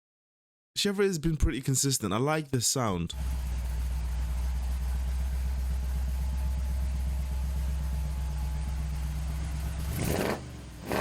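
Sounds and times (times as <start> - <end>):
car engine idling: 3.1 - 11.0.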